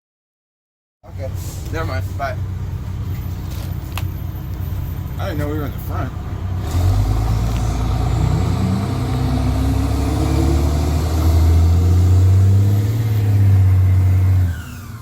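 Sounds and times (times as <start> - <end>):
diesel bus engine under load: 1.1 - 15.0.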